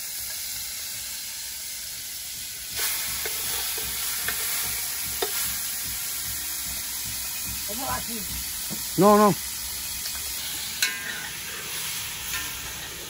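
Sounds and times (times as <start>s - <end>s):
chicken frying in hot fat: 0.0s - 13.0s
metal utensil clinking on pot: 10.8s - 11.3s.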